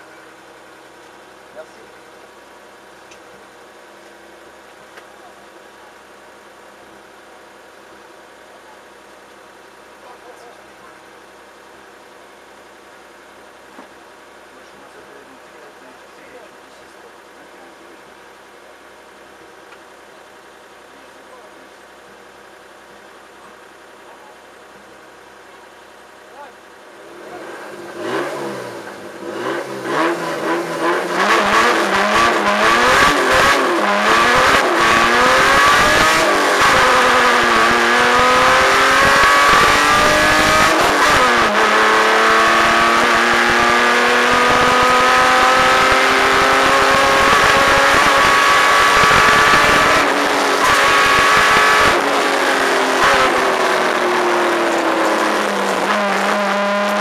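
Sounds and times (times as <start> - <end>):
rally car engine revving: 26.3 - 57.0.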